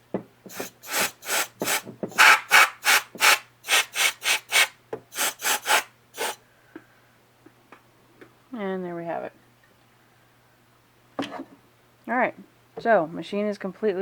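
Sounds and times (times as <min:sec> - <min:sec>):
compressed air duster puffs: 0:00.5 - 0:06.4.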